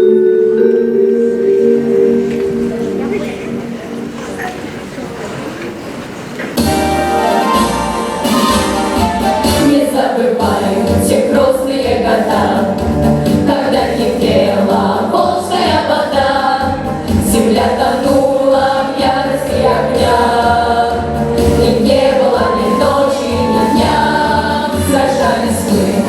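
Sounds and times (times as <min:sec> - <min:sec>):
instrumental backing with bass: 0:06.6 - 0:09.8, 0:10.4 - 0:26.0
vocal ensemble singing: 0:06.6 - 0:26.0.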